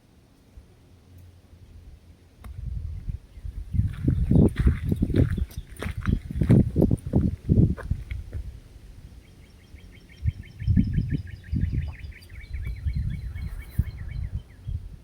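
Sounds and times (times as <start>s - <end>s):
low thumps and rumbles: 2.4s - 8.6s
songbird trilling: 9.2s - 15.0s.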